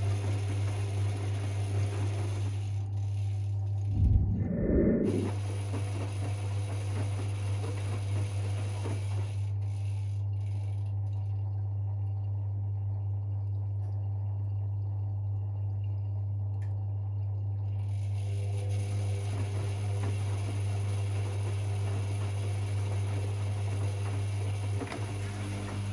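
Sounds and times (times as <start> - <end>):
washing machine humming: 18.2 - 25.9.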